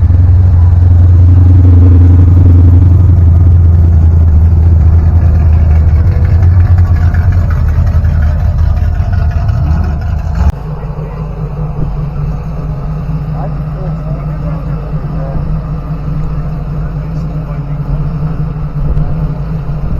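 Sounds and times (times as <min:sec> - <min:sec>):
car engine rumbling: 0:00.0 - 0:19.9.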